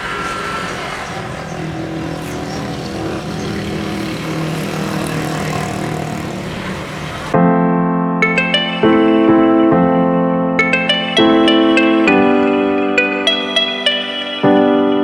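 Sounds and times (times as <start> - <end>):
motor humming: 0.0 - 7.4
piano music: 1.2 - 15.0.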